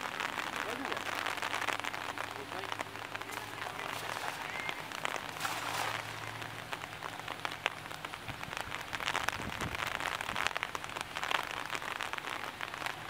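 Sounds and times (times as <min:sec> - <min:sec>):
rain pattering on water: 0:00.0 - 0:13.0
cast net splashing into water: 0:00.3 - 0:08.1.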